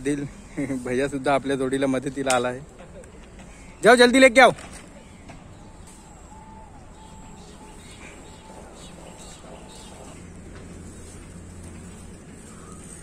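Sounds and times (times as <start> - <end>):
outdoor background noise: 0.0 - 13.0
faint bird calls: 2.9 - 3.9, 4.8 - 13.0.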